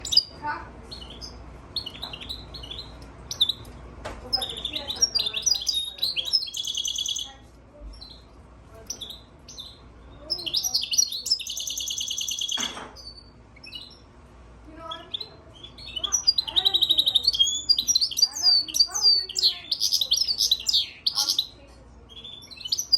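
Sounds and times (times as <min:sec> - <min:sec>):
bird singing high chirps: 0:00.0 - 0:14.1, 0:14.8 - 0:22.9
bird fast trills: 0:04.4 - 0:07.4, 0:08.9 - 0:14.1, 0:14.8 - 0:22.9.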